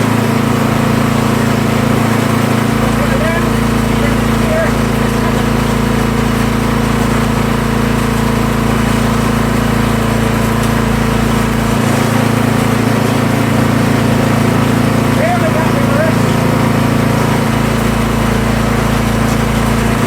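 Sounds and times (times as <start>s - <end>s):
small gasoline engine running: 0.0s - 20.0s.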